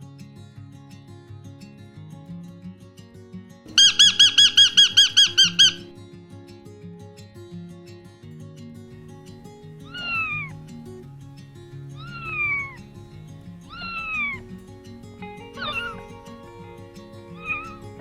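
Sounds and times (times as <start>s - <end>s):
cat meowing: 3.8s - 5.9s, 9.9s - 10.6s, 11.9s - 14.6s, 15.2s - 18.0s
background music: 8.8s - 18.0s.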